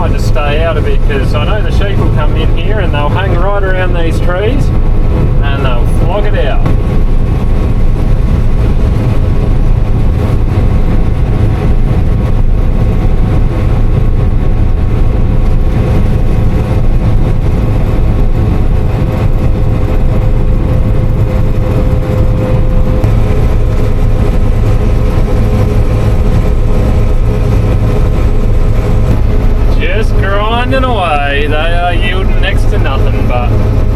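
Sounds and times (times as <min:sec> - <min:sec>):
combine harvester engine drone: 0:00.0 - 0:33.9
steady machine whine: 0:00.0 - 0:33.9.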